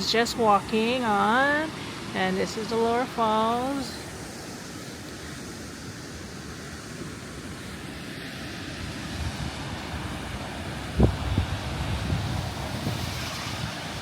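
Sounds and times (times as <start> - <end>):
waterfall rushing: 0.0 - 14.0
wind buffeting microphone: 8.9 - 14.0.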